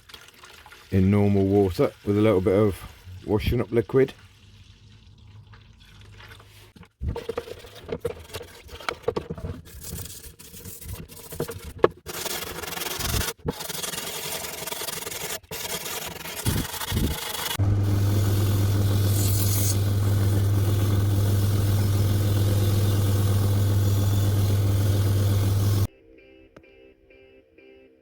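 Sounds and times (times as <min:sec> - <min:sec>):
scrubbing and scraping metal: 0:06.0 - 0:25.9.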